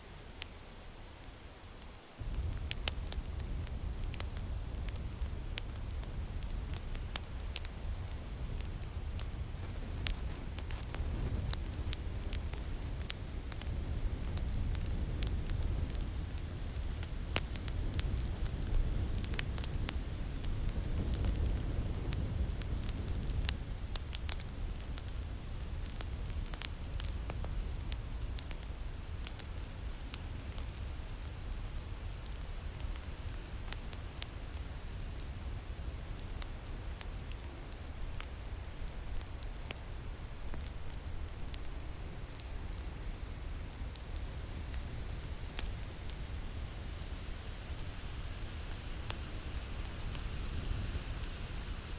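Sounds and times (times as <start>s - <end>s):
low rushing wind: 0.0s - 51.9s
wood fire crackling and popping: 0.1s - 51.9s.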